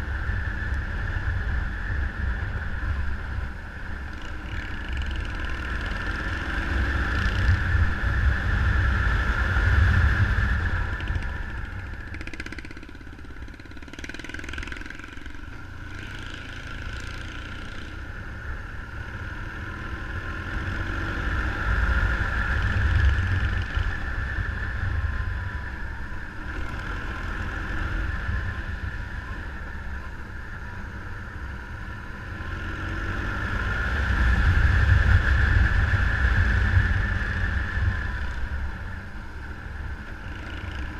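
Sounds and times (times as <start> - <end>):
motorcycle engine revving: 0.0 - 40.9
wind noise on microphone: 6.0 - 12.1, 32.4 - 39.9.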